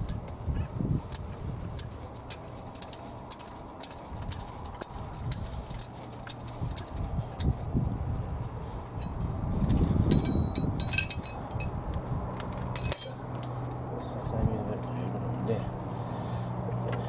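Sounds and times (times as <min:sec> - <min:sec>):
handling knocks and rumbles: 0:09.0 - 0:11.8, 0:12.4 - 0:13.4.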